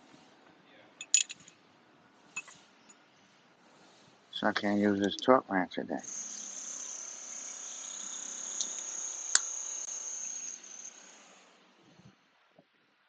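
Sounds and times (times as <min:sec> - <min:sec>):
cricket trilling: 0:06.0 - 0:11.0.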